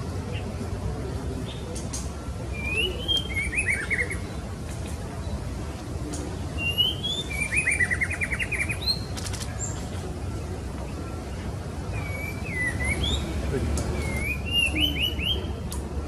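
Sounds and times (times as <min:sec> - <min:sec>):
bird calling: 0:11.9 - 0:15.6.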